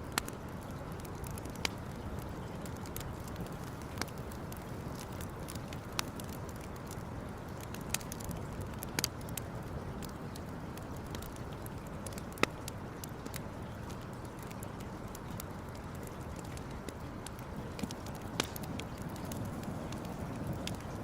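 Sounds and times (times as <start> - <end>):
campfire crackling: 0.0 - 21.0
sharp pops of fire: 17.2 - 21.0.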